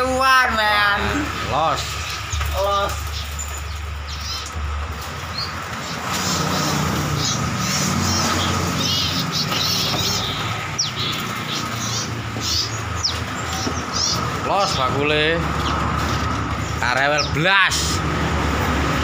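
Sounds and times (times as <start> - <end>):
low hum: 0.0 - 7.6
small birds chirping: 0.0 - 18.0.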